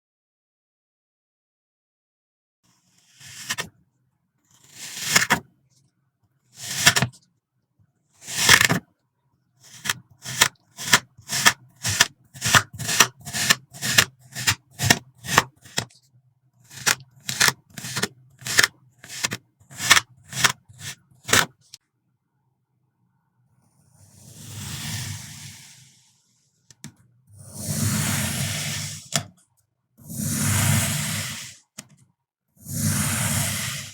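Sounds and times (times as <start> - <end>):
blade cutting sand: 3.0 - 3.7, 4.5 - 5.4, 6.6 - 7.2, 8.2 - 8.8, 9.6 - 15.9, 16.7 - 21.6, 27.4 - 29.3, 30.1 - 31.6, 32.6 - 33.9.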